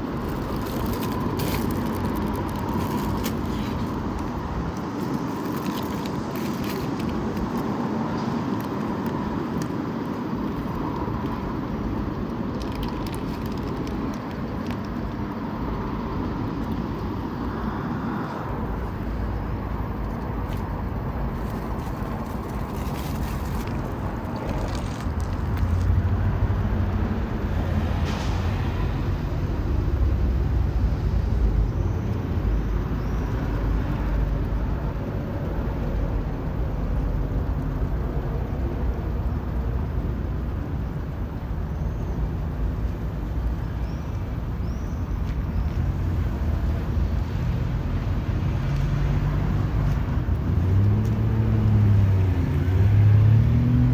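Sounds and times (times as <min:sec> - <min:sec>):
road traffic going by: 0:00.0 - 0:53.9.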